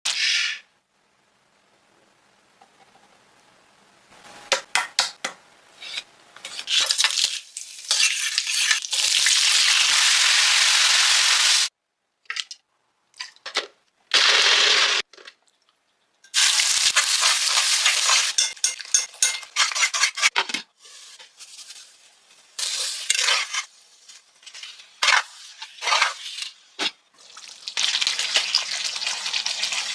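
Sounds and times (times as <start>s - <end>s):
oil sizzling in a pan: 5.7s - 11.7s, 16.3s - 19.7s, 20.8s - 29.9s
utensil stirring and clinking: 17.0s - 20.3s.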